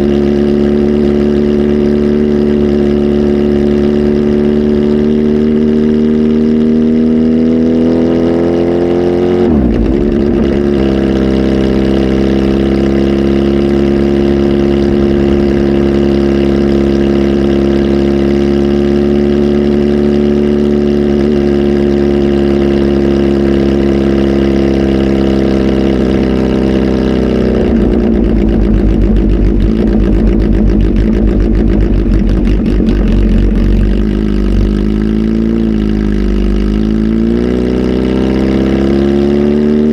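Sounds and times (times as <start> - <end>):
motorcycle engine running loud: 0.0 - 39.9.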